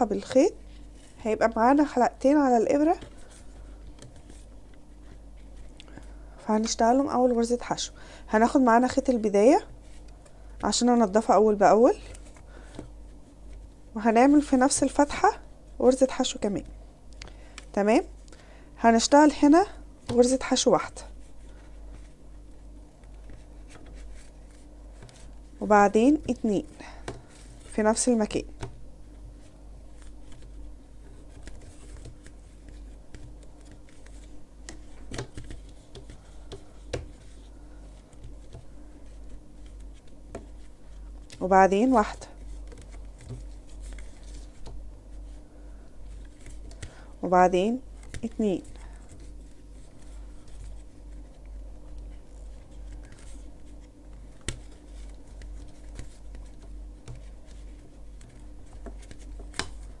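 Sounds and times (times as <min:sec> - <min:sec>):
steady low hum: 0:00.0 - 1:00.0.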